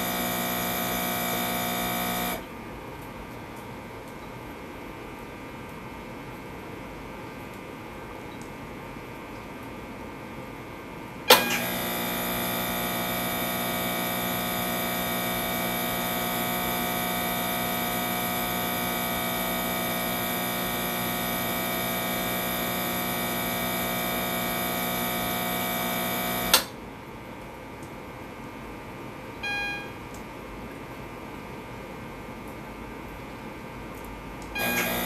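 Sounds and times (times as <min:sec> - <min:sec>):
air pump whirring hum: 0:00.0 - 0:02.6, 0:11.3 - 0:26.8, 0:34.4 - 0:35.0.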